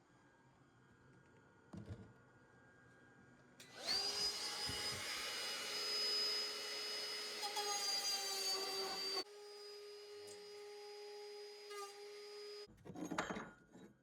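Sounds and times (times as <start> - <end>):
electric motor whining: 3.7 - 10.0.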